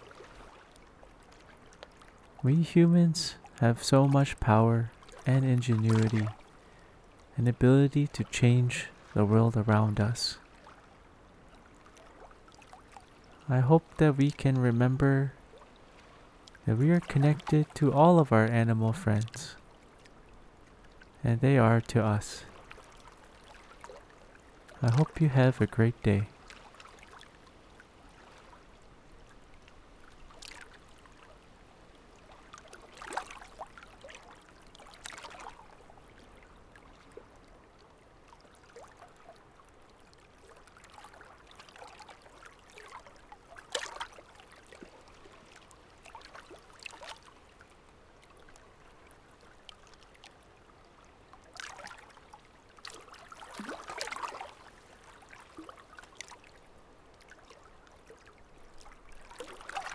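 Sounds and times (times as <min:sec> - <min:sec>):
water trickling: 0:04.9 - 0:07.4, 0:32.2 - 0:59.9
water splashing: 0:05.0 - 0:06.5, 0:24.7 - 0:25.4, 0:32.6 - 0:35.7, 0:52.8 - 0:56.6, 0:57.2 - 0:59.9.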